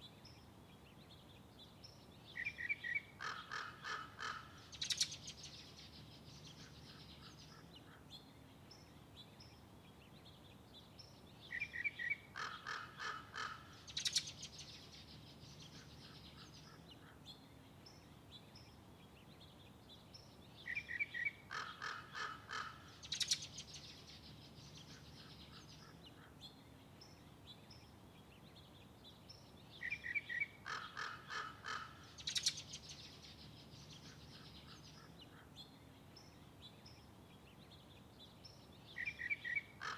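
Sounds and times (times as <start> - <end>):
bird making harsh calls: 3.2 - 4.6, 12.4 - 13.8, 21.5 - 22.9, 30.6 - 32.4.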